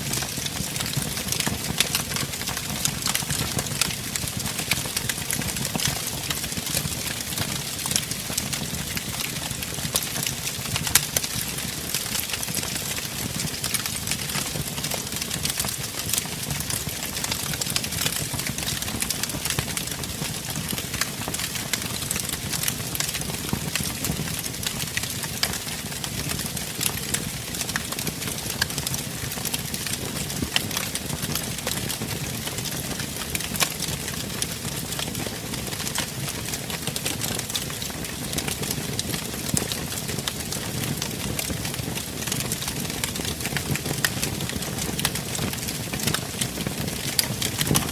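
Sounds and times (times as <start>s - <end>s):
fire roaring in fireplace: 0.0s - 47.9s
wood fire crackling and popping: 0.0s - 47.9s.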